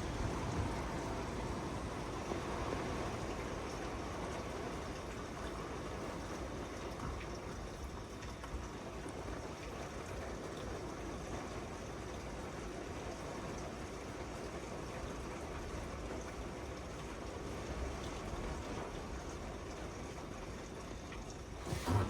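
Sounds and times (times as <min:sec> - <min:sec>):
wind: 0:00.0 - 0:17.2
rain: 0:00.0 - 0:22.0.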